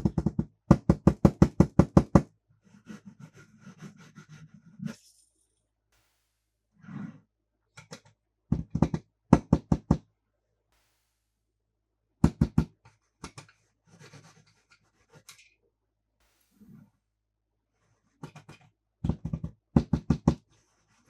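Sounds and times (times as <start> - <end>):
toys knocking on hard surface: 0.0 - 2.2, 8.5 - 10.0, 12.2 - 12.7, 19.0 - 20.4.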